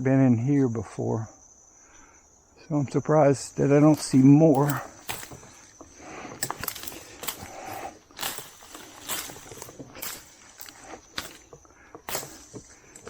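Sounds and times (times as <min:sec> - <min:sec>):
rustling of brush: 0:03.4 - 0:13.0
footsteps crunching through brush: 0:03.5 - 0:13.0.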